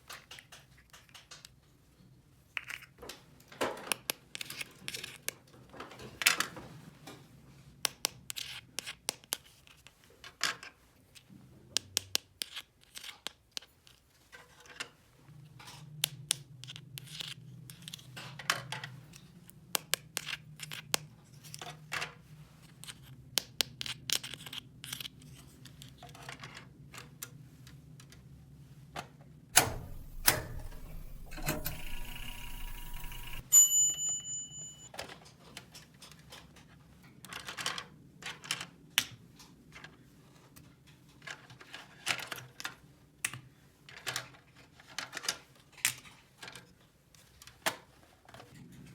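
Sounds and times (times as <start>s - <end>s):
rattling buzzing: 29.6s - 33.4s
short electronic beep: 29.6s - 34.9s.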